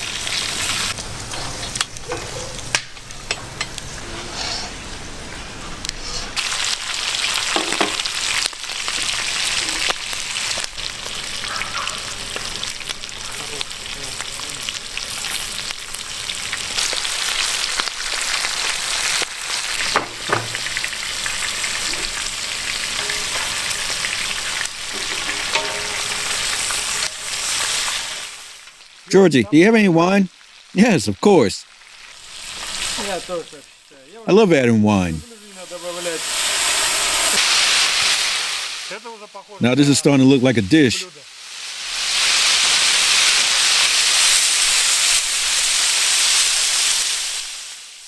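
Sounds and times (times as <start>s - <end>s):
meat sizzling in a pan: 0.0s - 29.1s, 30.3s - 30.8s, 31.6s - 34.2s, 35.2s - 39.5s, 40.9s - 48.0s
utensil scraping pan: 3.9s - 4.8s, 19.8s - 28.6s.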